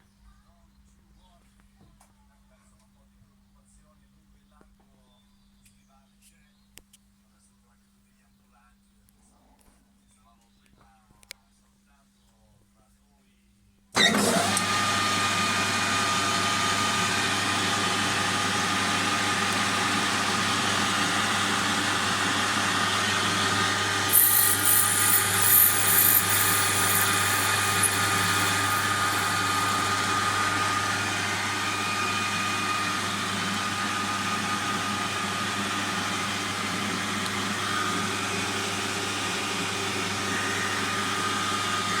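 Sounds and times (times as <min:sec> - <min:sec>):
metal lathe humming: 0:23.8 - 0:31.9
high-pitched rasping: 0:24.1 - 0:30.0.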